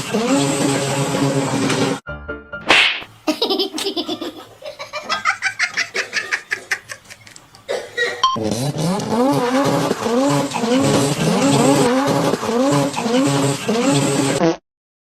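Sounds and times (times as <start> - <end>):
person laughing: 3.2 - 8.2.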